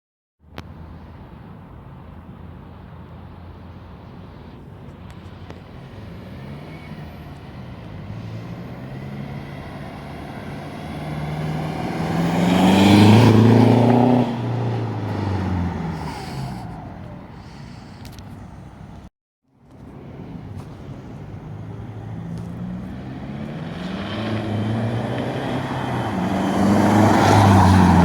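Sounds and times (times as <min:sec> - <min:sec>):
diesel engine revving: 0:05.6 - 0:19.0, 0:19.9 - 0:28.0.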